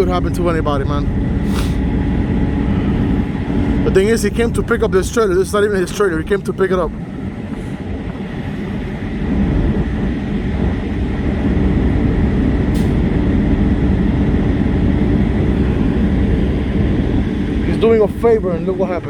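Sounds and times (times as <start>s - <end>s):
diesel truck engine rumbling: 0.0s - 19.0s.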